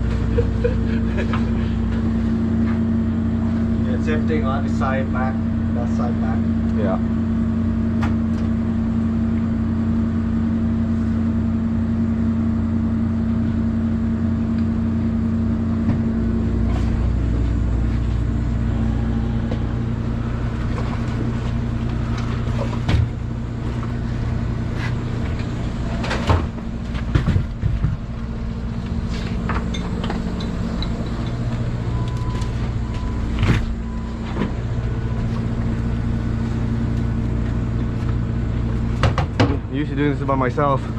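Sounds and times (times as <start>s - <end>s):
boat engine running: 0.0s - 40.9s
crab traps knocking and clattering: 25.9s - 28.1s, 39.0s - 39.6s.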